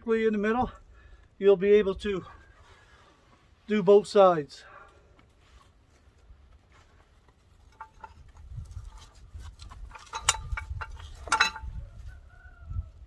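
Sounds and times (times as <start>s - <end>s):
metal clicks and knocks: 7.6s - 8.5s, 9.6s - 11.8s.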